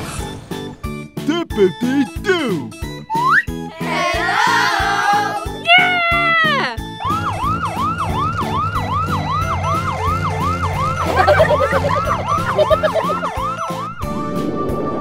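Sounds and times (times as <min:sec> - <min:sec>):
children's background music: 0:00.8 - 0:08.6, 0:10.9 - 0:14.9
ambulance siren wailing: 0:06.8 - 0:15.0.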